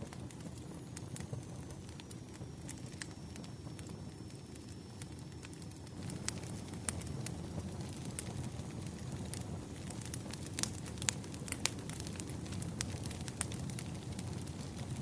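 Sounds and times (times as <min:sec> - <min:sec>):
campfire flames rumbling: 0:00.0 - 0:15.0
wood crackling and popping: 0:00.0 - 0:15.0.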